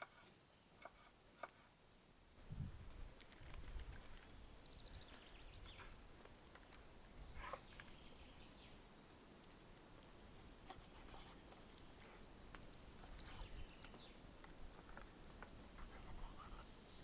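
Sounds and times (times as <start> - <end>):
faint chirps and ticks: 0.0 - 1.7, 3.2 - 17.0
bird singing fast trill: 0.4 - 1.4.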